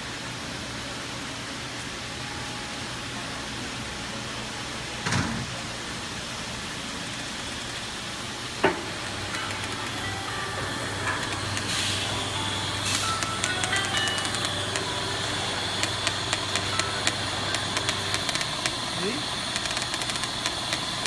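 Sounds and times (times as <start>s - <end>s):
welding machine humming and hissing: 5.5s - 21.0s
faint steady tones: 8.6s - 21.0s.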